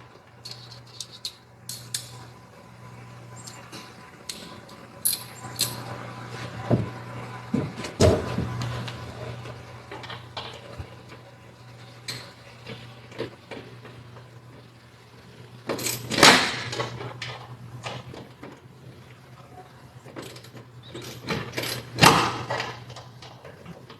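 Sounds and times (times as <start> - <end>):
steady low hum: 0.0 - 23.9
clicks and knocks of hand tools: 0.4 - 2.2
metal scraping clatter: 3.3 - 14.7.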